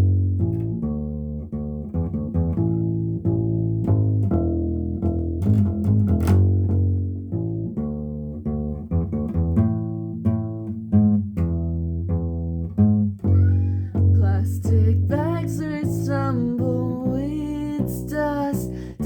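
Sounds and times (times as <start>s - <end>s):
plucked string instrument: 0.0s - 19.0s.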